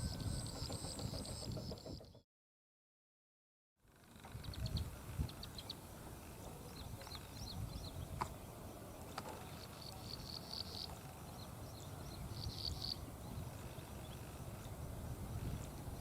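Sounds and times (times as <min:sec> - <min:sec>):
small bird high-pitched calls: 0:04.0 - 0:16.0.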